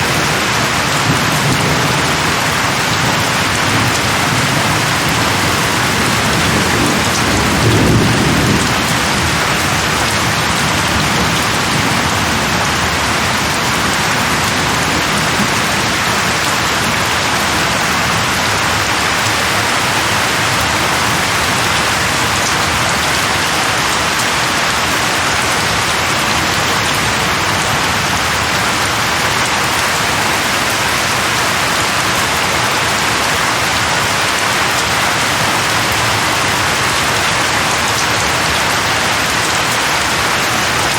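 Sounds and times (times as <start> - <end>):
thunder rumble: 0.0 - 16.4, 29.6 - 32.6
heavy rain falling: 0.0 - 40.9.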